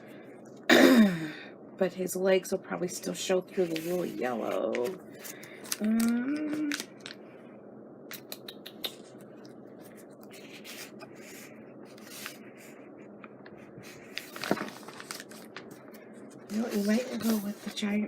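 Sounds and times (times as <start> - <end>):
paper rustling: 3.5 - 7.2, 9.7 - 18.0.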